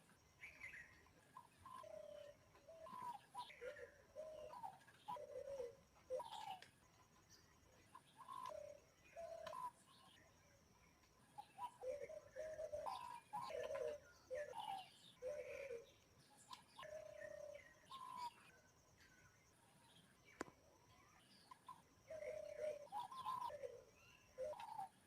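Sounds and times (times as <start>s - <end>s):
small birds chirping: 0.0s - 25.0s
dove cooing: 1.4s - 6.6s, 7.9s - 9.8s, 11.4s - 16.0s, 16.7s - 18.5s, 21.5s - 25.0s.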